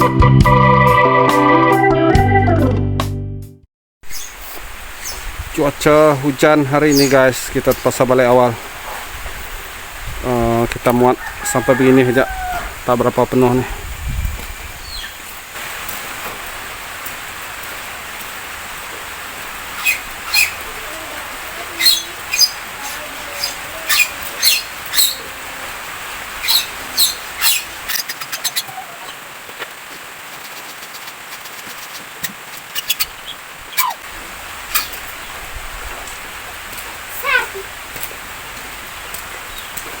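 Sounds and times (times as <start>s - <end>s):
rain hissing: 4.0s - 40.0s
bird chirps: 4.1s - 4.4s, 19.8s - 20.6s, 21.7s - 25.3s, 26.4s - 29.2s, 34.7s - 35.0s.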